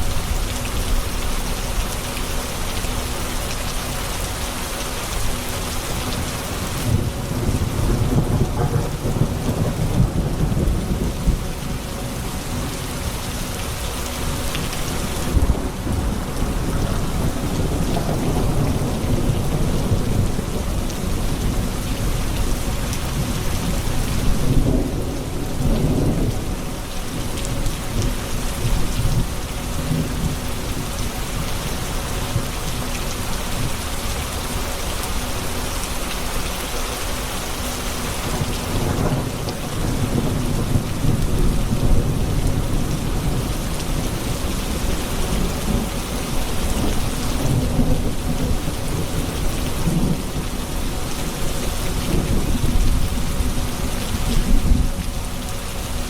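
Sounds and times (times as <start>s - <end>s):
steady rain pouring: 0.0s - 56.0s
low rolling thunder: 6.1s - 32.8s, 38.2s - 56.0s.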